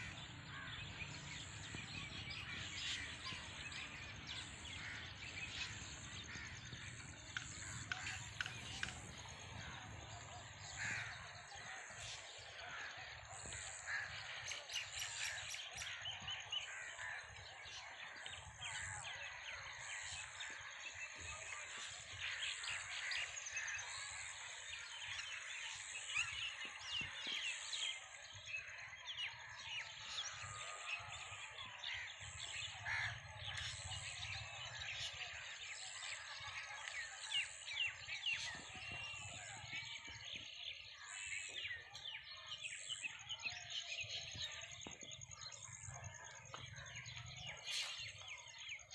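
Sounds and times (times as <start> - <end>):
birds chirping: 0.0 - 48.9
crows cawing: 4.3 - 21.0, 31.8 - 35.4.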